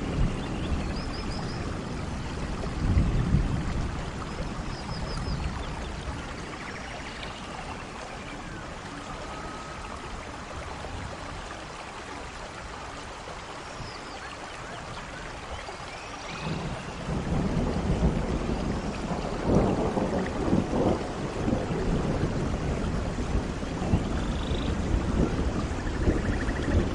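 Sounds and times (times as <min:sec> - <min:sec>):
thunder rumbling: 0:00.0 - 0:07.0, 0:16.3 - 0:26.9
steady rain: 0:00.0 - 0:26.9.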